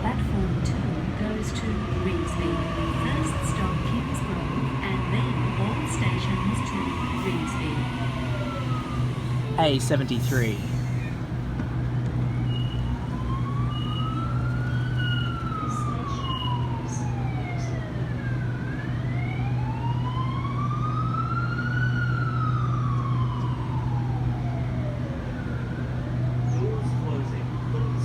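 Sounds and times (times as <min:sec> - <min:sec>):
low hum: 0:00.7 - 0:16.0
siren wailing: 0:01.1 - 0:28.0.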